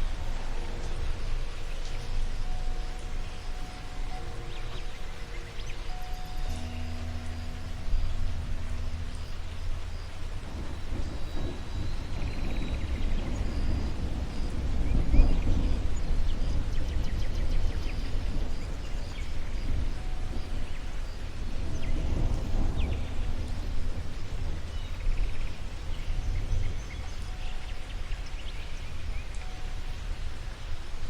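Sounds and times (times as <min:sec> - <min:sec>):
steady low rumble: 0:00.0 - 0:31.0
bird trill: 0:00.9 - 0:23.8.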